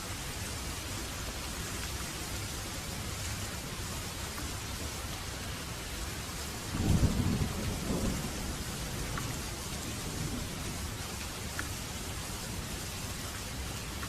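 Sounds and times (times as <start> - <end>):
rain falling: 0.0 - 14.0
thunder rumble: 6.7 - 10.9.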